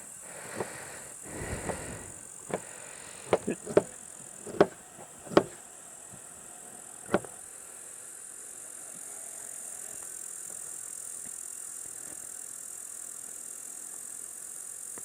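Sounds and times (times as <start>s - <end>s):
sharp knocks: 0.5s - 5.6s.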